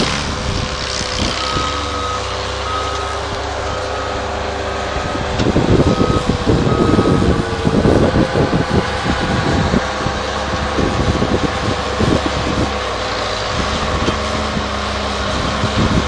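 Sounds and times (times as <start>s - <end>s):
loader engine running: 0.0s - 16.0s
reversing alarm beeping: 1.4s - 4.5s, 5.6s - 8.6s.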